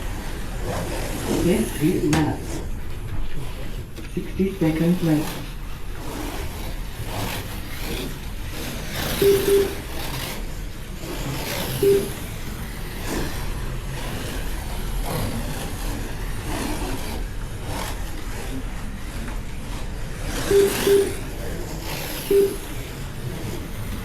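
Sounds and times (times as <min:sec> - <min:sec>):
slot car motors whining: 0:00.0 - 0:24.0
short electronic beeps: 0:09.2 - 0:10.0, 0:11.8 - 0:12.3, 0:20.5 - 0:21.3, 0:22.3 - 0:22.8.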